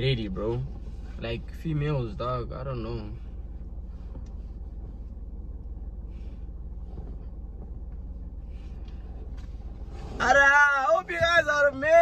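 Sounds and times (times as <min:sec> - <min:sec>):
car engine idling: 0:00.0 - 0:12.0
faint rustles: 0:03.0 - 0:10.6.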